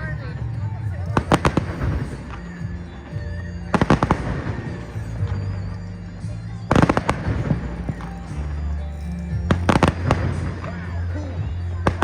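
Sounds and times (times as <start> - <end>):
music playing: 0.0 - 12.0
fireworks cracking: 1.0 - 12.0.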